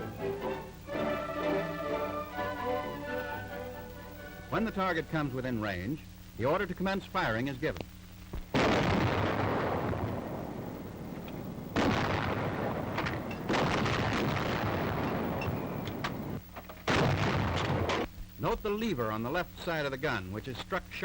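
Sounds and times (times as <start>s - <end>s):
heavy gun shots: 8.5s - 18.1s
long rumble after shots: 8.5s - 18.1s.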